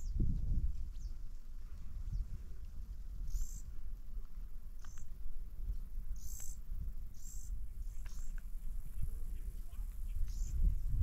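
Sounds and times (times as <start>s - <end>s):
small bird chirping: 3.2s - 3.7s, 4.8s - 5.2s, 6.1s - 11.0s.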